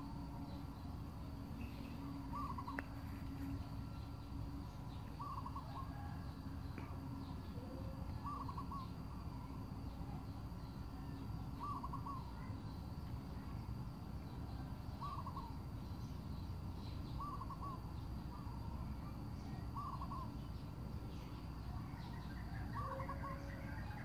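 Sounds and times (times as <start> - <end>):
low background noise: 0.0 - 24.0
bird calling: 1.6 - 3.6, 4.6 - 6.2, 7.4 - 9.6, 11.6 - 12.6, 15.0 - 15.6, 17.1 - 18.6, 19.4 - 20.6, 21.9 - 24.0.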